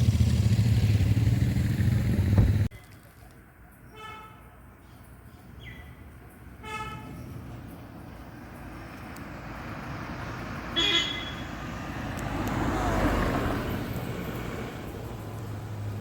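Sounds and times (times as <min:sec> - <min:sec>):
road traffic noise: 0:00.0 - 0:16.0
vehicle horn toot: 0:06.6 - 0:07.2, 0:10.8 - 0:11.6
vehicle passing: 0:07.2 - 0:16.0.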